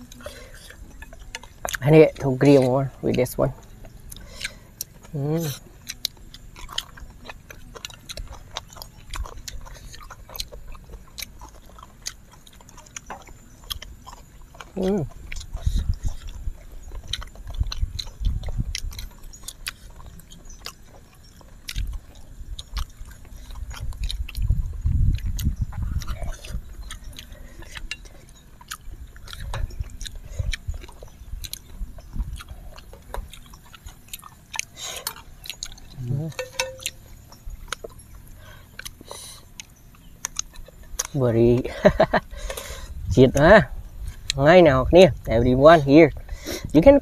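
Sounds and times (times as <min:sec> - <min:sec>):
chewing sounds: 0:00.0 - 0:47.0
chopsticks clicking: 0:34.6 - 0:37.0.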